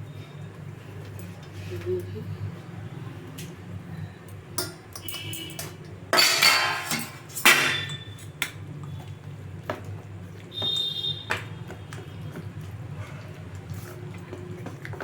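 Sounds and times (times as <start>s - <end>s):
metal utensils clinking: 4.6s - 8.1s.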